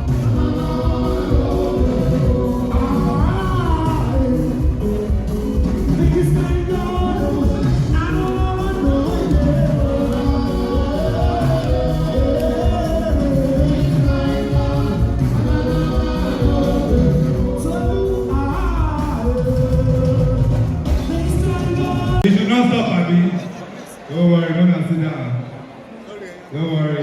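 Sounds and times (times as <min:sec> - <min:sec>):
music with pulsing beat: 0:00.0 - 0:22.2
singing: 0:00.0 - 0:22.3.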